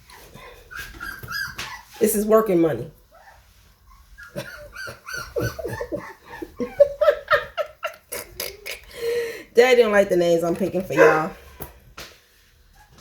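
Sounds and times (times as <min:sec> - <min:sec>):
puppy whining and whimpering: 0:00.0 - 0:02.3, 0:03.0 - 0:06.9, 0:10.9 - 0:11.4, 0:12.7 - 0:13.0.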